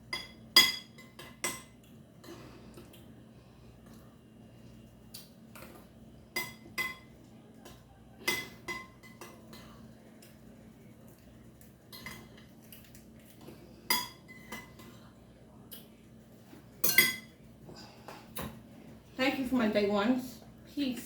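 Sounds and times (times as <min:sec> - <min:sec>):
utensil clinking on a dish: 0:05.6 - 0:09.8, 0:11.9 - 0:12.6, 0:13.8 - 0:15.1, 0:16.8 - 0:17.4.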